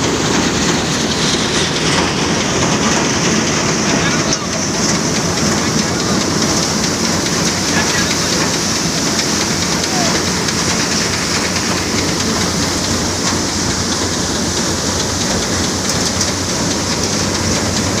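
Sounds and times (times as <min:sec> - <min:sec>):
thresher running: 0:00.0 - 0:18.0.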